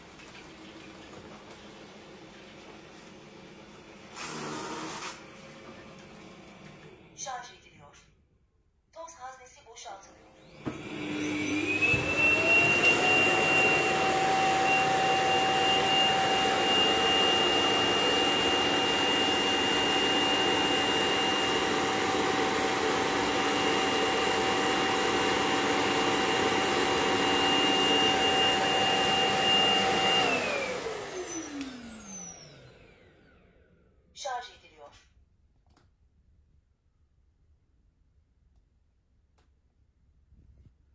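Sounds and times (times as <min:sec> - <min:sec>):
suction motor whine: 0:10.4 - 0:22.8, 0:25.4 - 0:33.5.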